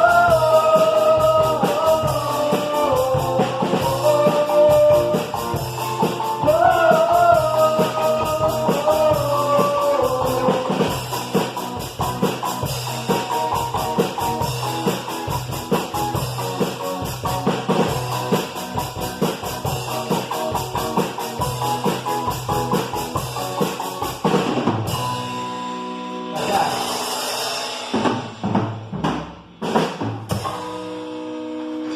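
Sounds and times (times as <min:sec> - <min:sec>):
drum kit beat: 0:00.0 - 0:31.9
rock band playing: 0:00.0 - 0:31.9.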